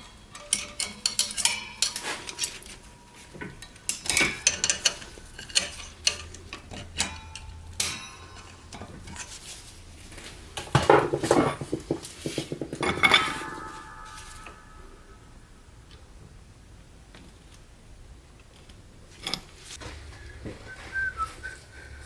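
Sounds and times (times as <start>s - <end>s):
metal tools clinking and clattering: 0.0s - 15.0s.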